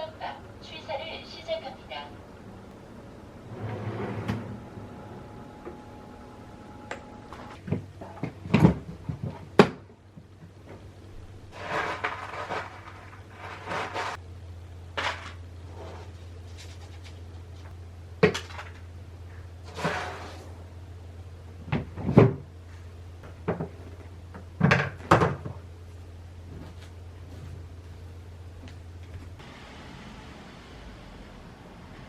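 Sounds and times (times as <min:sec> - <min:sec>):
low steady hum: 0:00.0 - 0:32.0
rustling: 0:15.0 - 0:17.8.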